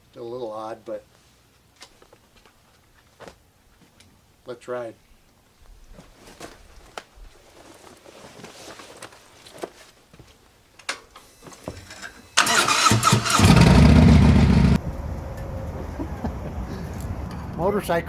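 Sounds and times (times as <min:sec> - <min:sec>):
electric starter cranking: 0:11.8 - 0:14.8
motorcycle engine running: 0:12.4 - 0:14.8.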